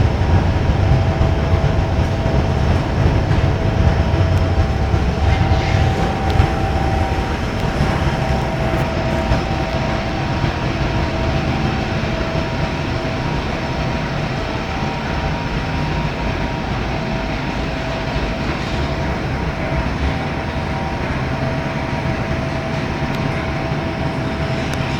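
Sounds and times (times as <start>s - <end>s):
faint even whine: 0.0s - 11.3s
furnace roaring: 0.0s - 11.4s.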